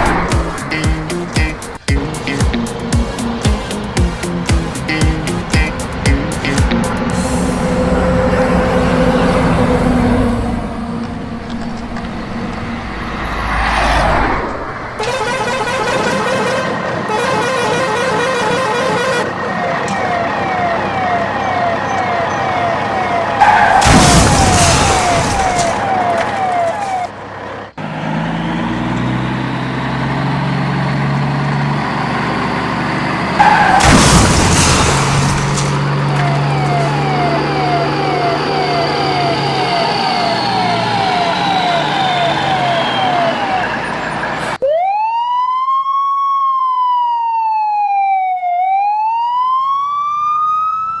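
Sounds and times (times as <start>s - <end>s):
loud rushing noise with rumble: 0.0s - 4.0s, 4.8s - 15.0s
engine noise: 0.0s - 44.6s
low hum: 4.8s - 15.6s
wailing siren: 7.0s - 28.8s, 29.4s - 51.0s
police siren yelping: 17.1s - 27.2s, 35.5s - 51.0s
siren wailing in short whoops: 36.3s - 43.9s.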